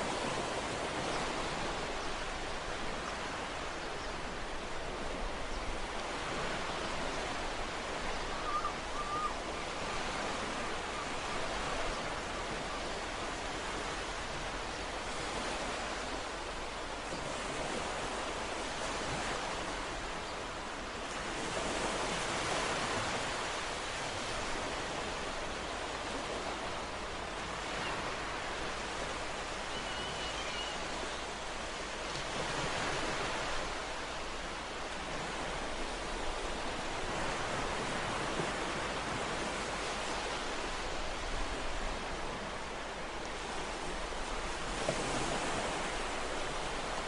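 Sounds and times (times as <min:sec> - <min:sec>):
ocean waves on a shore: 0:00.0 - 0:47.0
faint high-pitched chirp: 0:29.7 - 0:30.8.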